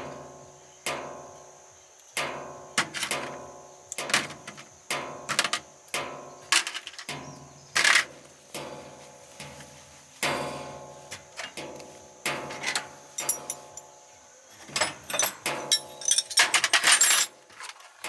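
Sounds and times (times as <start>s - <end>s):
metal clanking on metal: 10.2s - 13.9s, 14.6s - 18.0s.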